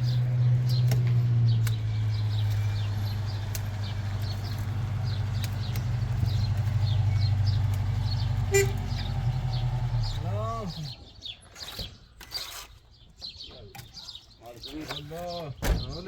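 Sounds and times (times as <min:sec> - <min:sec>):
low engine hum: 0:00.0 - 0:11.1
birds chirping: 0:00.0 - 0:16.0.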